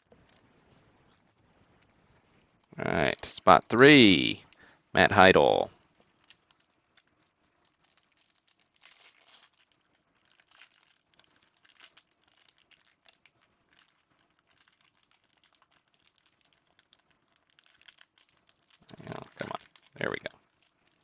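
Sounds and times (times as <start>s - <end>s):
wrapper crinkling: 5.7s - 21.0s.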